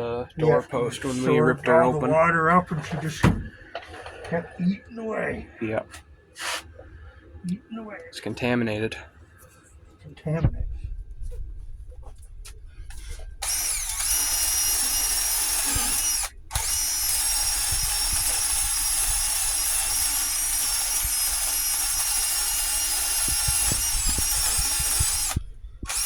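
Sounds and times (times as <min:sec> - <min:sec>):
power sander whining: 0:12.9 - 0:26.0.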